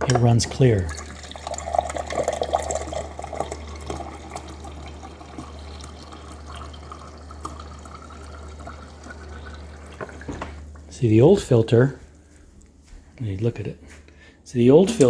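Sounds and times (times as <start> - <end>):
water running into a glass: 0.0 - 10.8.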